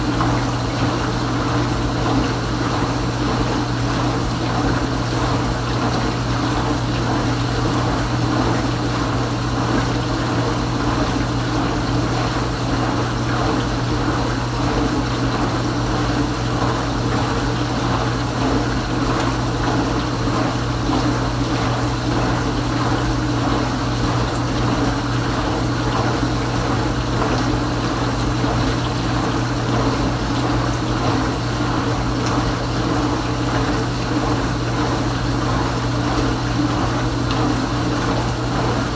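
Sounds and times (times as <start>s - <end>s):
dishwasher pump motor hum: 0.0s - 38.9s.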